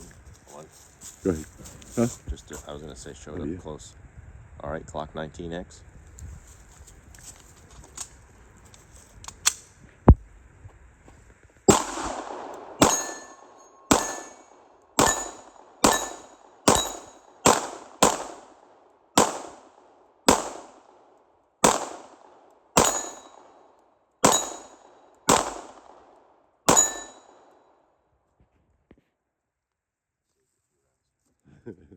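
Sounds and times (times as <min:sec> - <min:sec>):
pistol shots: 0:11.7 - 0:27.6
steel plates clanging: 0:12.8 - 0:17.3, 0:22.8 - 0:23.4, 0:24.2 - 0:24.8, 0:26.7 - 0:27.4.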